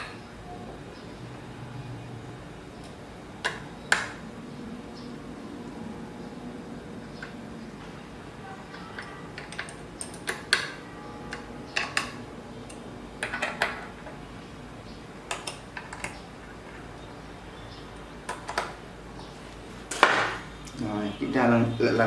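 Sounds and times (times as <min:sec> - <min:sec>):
metal clicks and clinks: 0:08.9 - 0:10.8.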